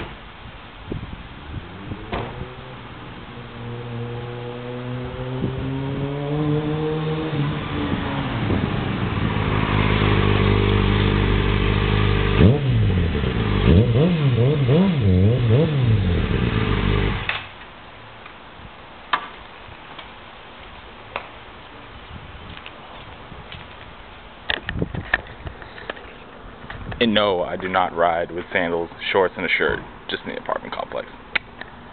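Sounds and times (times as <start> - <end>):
motorcycle engine revving: 1.4 - 17.4.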